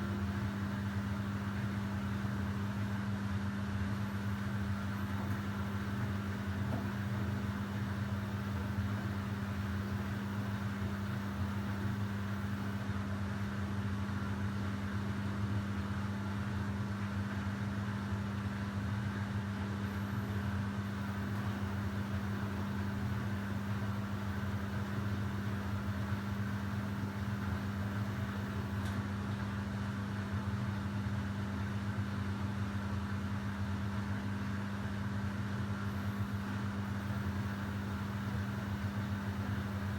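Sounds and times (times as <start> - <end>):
washing machine spin cycle hum: 0.0 - 39.9.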